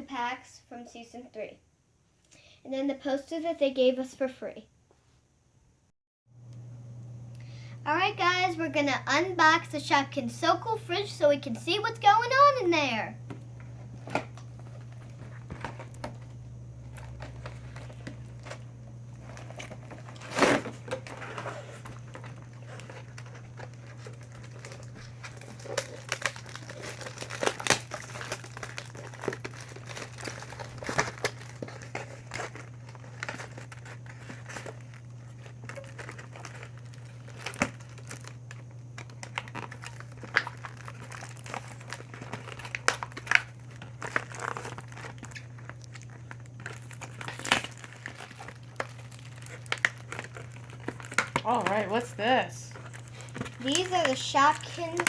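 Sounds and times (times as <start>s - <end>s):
steady low hum: 6.4s - 55.0s
sharp crackles and snaps: 13.4s - 51.9s
packaging crinkling and tearing: 13.6s - 55.0s.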